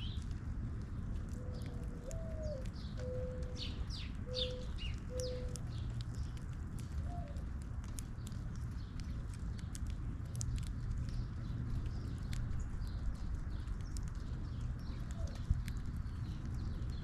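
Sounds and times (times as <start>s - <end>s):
small birds chirping: 0.0s - 17.0s
dove cooing: 1.4s - 3.6s, 4.2s - 5.6s.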